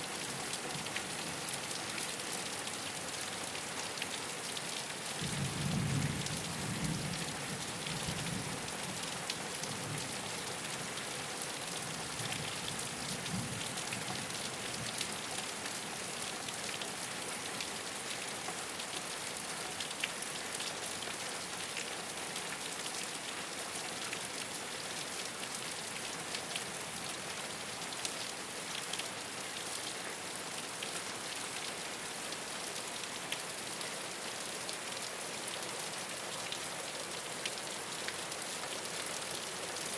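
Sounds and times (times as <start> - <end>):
rain on a rooftop: 0.0 - 39.9.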